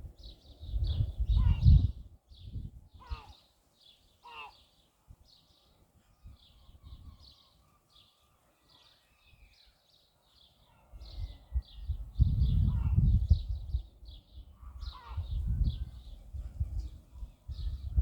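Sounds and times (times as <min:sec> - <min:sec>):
loud pitched bird calls: 0:03.0 - 0:03.5, 0:04.2 - 0:04.8, 0:14.4 - 0:16.2.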